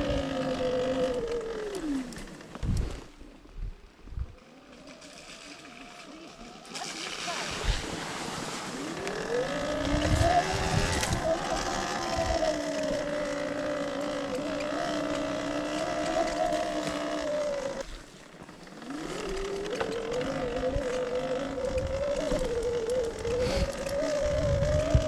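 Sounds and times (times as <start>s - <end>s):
electric dirt bike motor whining: 0.0s - 3.2s, 3.9s - 25.0s.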